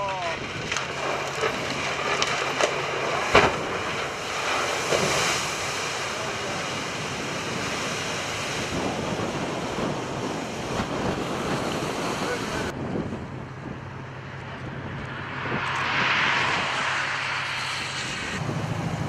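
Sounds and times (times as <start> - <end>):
rough sea water rushing: 0.0 - 13.2
wind buffeting microphone: 0.0 - 19.0.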